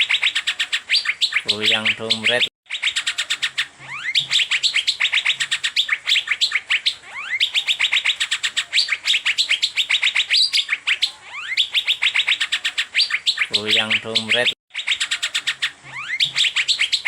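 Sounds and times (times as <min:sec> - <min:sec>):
bird singing rapid sharp notes: 0:00.0 - 0:17.0
bird rising whistle: 0:02.7 - 0:13.8, 0:14.7 - 0:17.0.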